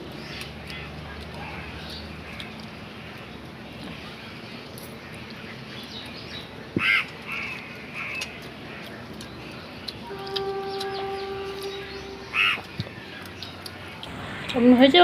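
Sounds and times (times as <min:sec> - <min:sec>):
bird calling: 0:06.4 - 0:15.0
steady low tone: 0:10.0 - 0:13.4, 0:14.0 - 0:15.0.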